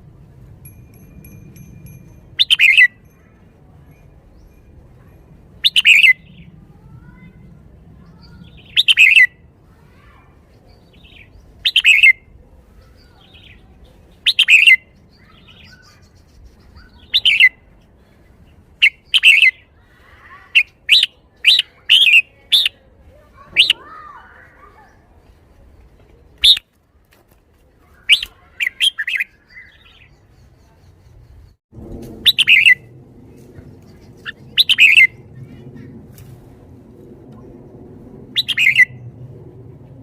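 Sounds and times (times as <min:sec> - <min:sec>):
bulbul singing whistled phrases: 0:02.4 - 0:03.0, 0:05.6 - 0:06.5, 0:08.2 - 0:09.4, 0:10.9 - 0:12.3, 0:14.2 - 0:17.6, 0:18.8 - 0:19.7, 0:20.6 - 0:22.8, 0:23.6 - 0:23.8, 0:26.4 - 0:26.6, 0:28.0 - 0:31.5, 0:32.3 - 0:32.8, 0:34.0 - 0:35.2, 0:38.4 - 0:39.0.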